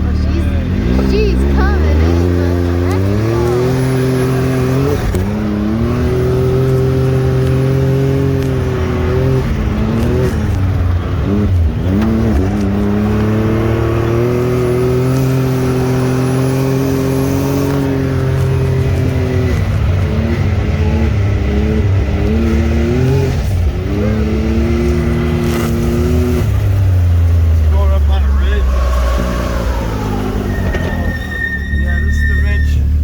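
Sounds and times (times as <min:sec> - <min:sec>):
utility vehicle engine under load: 0:00.0 - 0:33.0.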